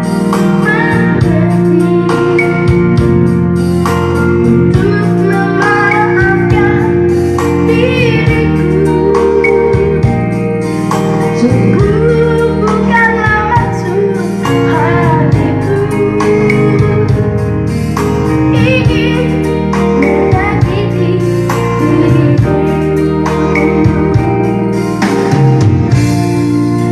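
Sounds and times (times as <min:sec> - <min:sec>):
band with guitar: 0:00.0 - 0:26.9
child singing: 0:00.6 - 0:02.8, 0:04.5 - 0:07.0, 0:07.6 - 0:10.1, 0:11.4 - 0:17.1, 0:18.5 - 0:24.2.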